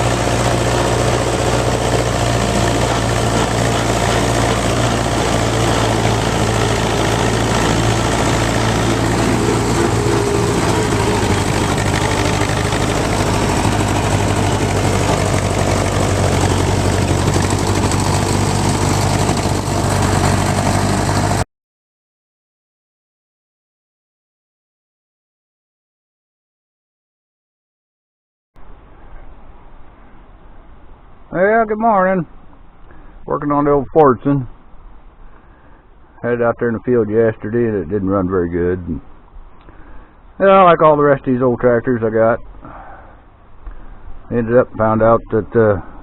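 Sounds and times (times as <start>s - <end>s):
tractor engine droning: 0.0s - 21.4s.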